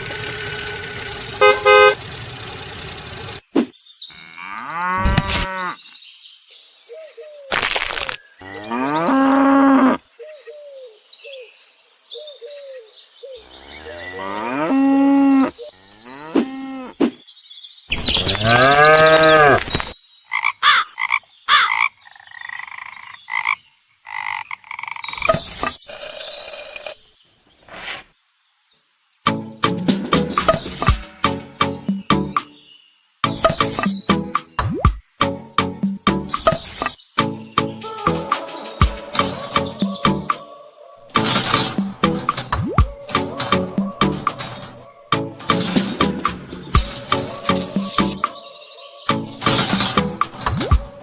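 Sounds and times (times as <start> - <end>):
soft chirping calls: 30.2 - 51.0
long rising and falling animal calls: 37.8 - 41.2.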